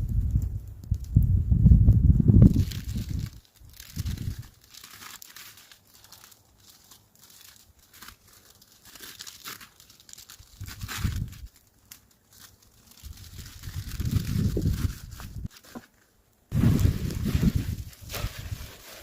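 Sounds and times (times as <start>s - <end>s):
crackles: 0.0s - 19.0s
rustling and crinkling: 0.0s - 19.0s.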